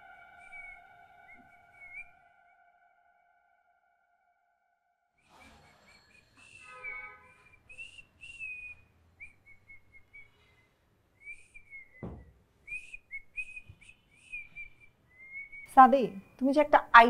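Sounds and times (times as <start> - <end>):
dull thump: 12.0 - 12.3.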